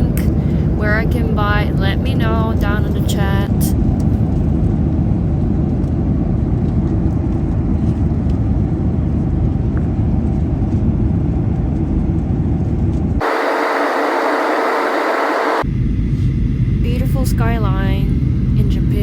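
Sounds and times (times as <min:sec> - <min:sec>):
airliner cabin rumble: 0:00.0 - 0:19.0
hissy steady noise: 0:13.2 - 0:15.6.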